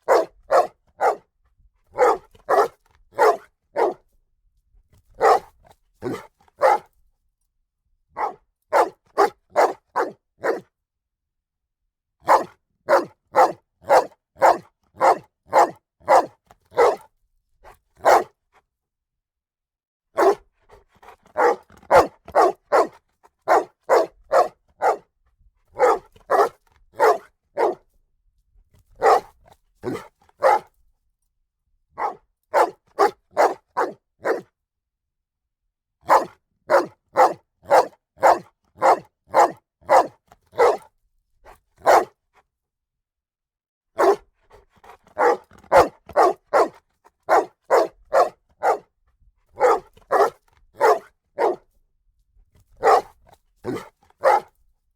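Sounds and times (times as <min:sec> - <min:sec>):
dog barking: 0:00.0 - 0:01.3, 0:01.9 - 0:04.1, 0:05.2 - 0:06.9, 0:08.1 - 0:10.7, 0:12.2 - 0:17.1, 0:18.0 - 0:18.4, 0:20.2 - 0:25.1, 0:25.7 - 0:27.9, 0:29.0 - 0:30.8, 0:32.0 - 0:34.5, 0:36.0 - 0:40.9, 0:41.8 - 0:42.2, 0:44.0 - 0:48.9, 0:49.5 - 0:51.7, 0:52.8 - 0:54.6.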